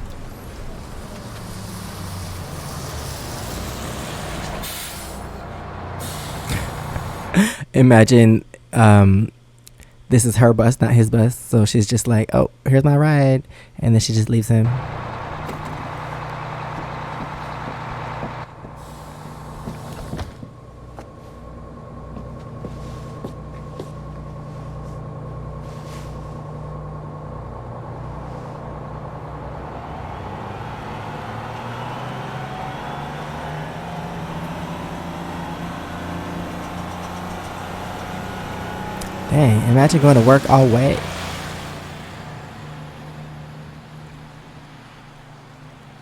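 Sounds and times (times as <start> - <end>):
bus engine running: 0.0 - 7.7, 14.6 - 46.0.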